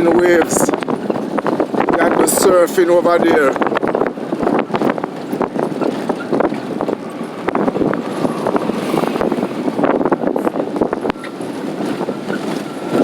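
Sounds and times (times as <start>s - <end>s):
road and wind noise: 0.0s - 13.0s
knocks and rattles: 3.5s - 13.0s.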